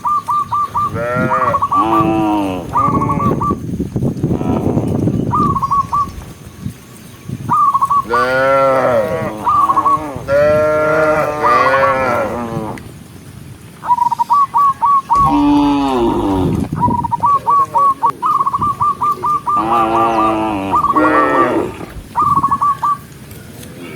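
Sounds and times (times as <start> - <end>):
bird chirps: 0.0 - 1.0
cows mooing: 0.9 - 3.4, 8.1 - 12.8, 15.2 - 16.8, 19.5 - 22.0.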